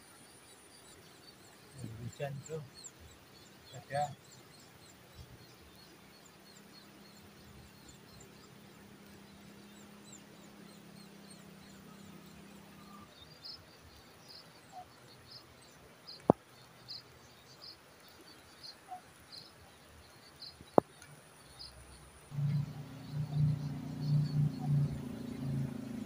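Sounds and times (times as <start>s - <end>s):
low steady hum: 22.2s - 26.0s.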